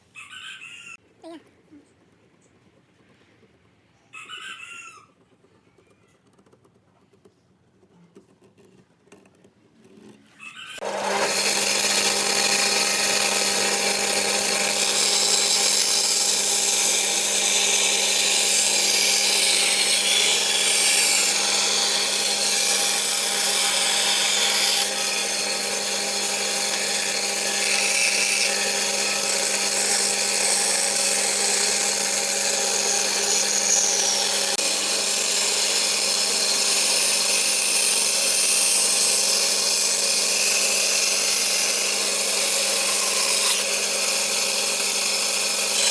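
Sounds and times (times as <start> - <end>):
electric power tool running: 10.8 - 45.9.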